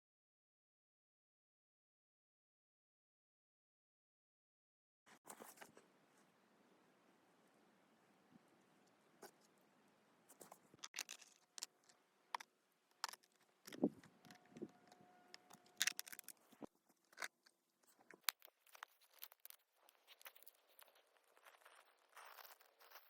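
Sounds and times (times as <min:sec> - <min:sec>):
small crunches and scrapes: 0:05.1 - 0:05.8, 0:10.3 - 0:23.0.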